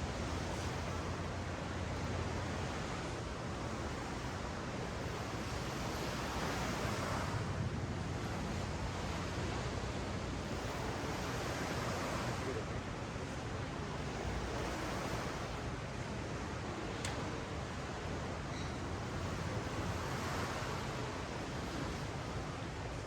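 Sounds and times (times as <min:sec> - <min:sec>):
ocean waves washing on beach: 0:00.0 - 0:23.0.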